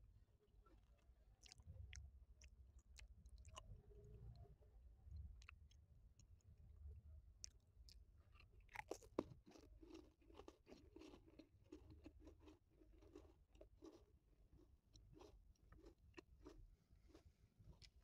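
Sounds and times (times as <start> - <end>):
biscuit being bitten and chewed: 0.8 - 3.7, 7.4 - 18.0.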